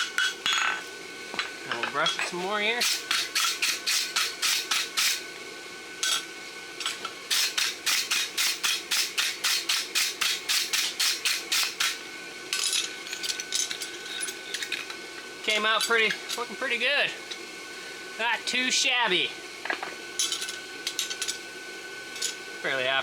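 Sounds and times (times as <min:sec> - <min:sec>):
wire brush scrubbing steel: 0:02.3 - 0:05.2, 0:07.3 - 0:12.0.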